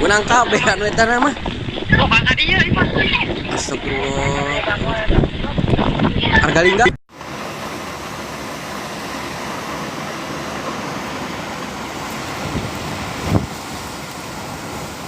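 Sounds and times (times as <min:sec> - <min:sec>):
strong storm wind rushing: 0:00.0 - 0:15.0.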